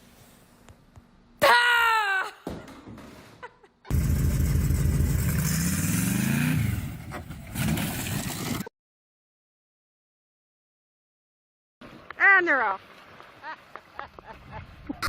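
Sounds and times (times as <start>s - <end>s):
engine revving: 3.9s - 8.6s.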